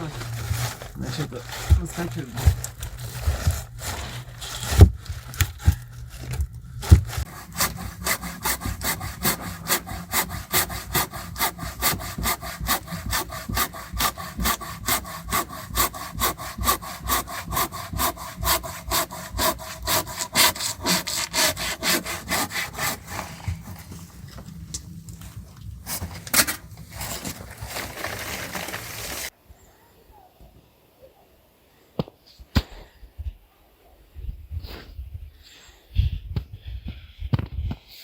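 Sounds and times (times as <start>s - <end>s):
hand saw cutting log: 0.0s - 24.6s, 25.8s - 29.3s.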